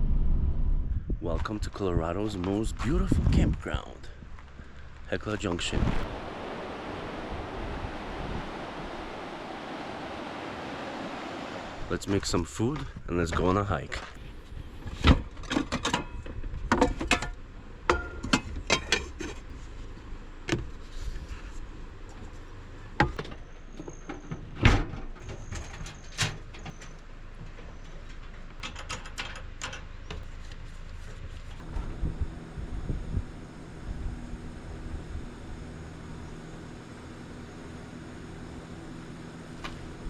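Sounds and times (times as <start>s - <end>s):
steady low hum: 1.8s - 15.0s, 31.4s - 40.0s.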